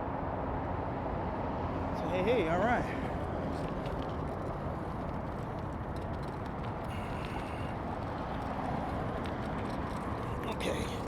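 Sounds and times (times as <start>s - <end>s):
traffic rumble: 0.6s - 11.0s.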